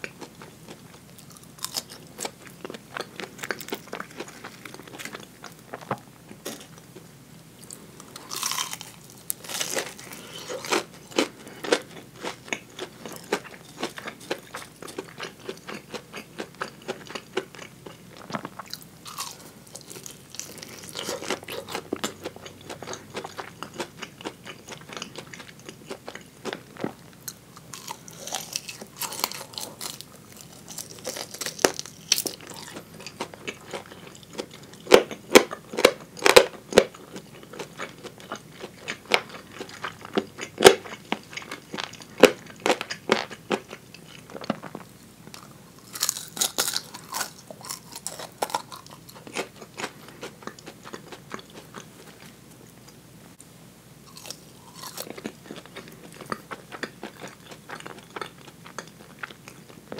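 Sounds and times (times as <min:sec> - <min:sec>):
crunching fried chicken: 0:00.0 - 0:06.8, 0:07.6 - 0:52.3, 0:54.0 - 0:59.9
wet chewing: 0:07.6 - 0:44.8, 0:54.1 - 0:59.9.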